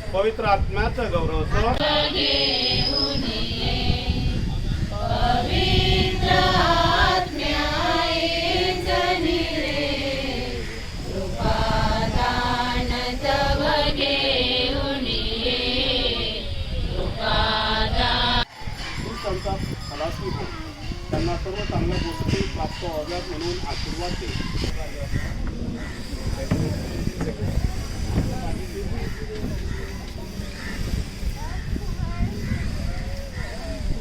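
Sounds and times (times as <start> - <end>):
group of voices chanting: 1.7 - 19.3.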